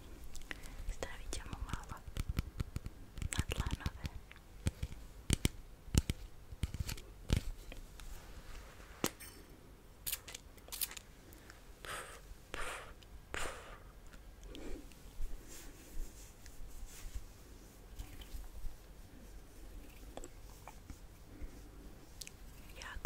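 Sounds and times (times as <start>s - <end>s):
sharp clicks and taps: 1.4s - 7.4s
soft swishing strokes: 15.0s - 22.8s.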